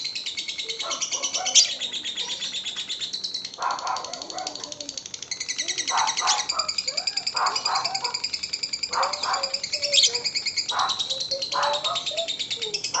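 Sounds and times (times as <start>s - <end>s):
lovebird chattering trill: 0.0s - 13.0s
lower bird calls: 0.0s - 13.0s.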